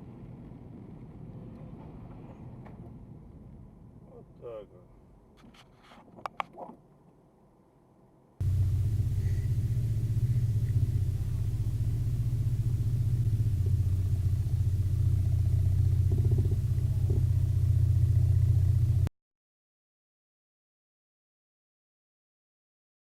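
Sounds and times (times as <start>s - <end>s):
car rumbling on the move: 8.4s - 19.1s.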